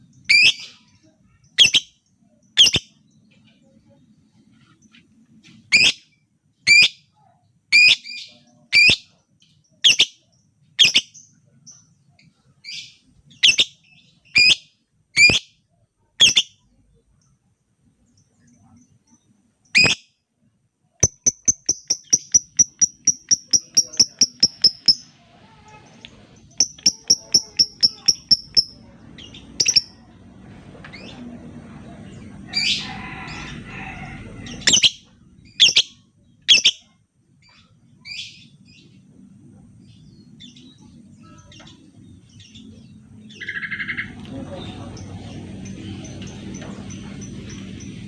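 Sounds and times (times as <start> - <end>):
bird high ticking notes: 21.0 - 25.1, 26.5 - 28.9, 29.5 - 30.0.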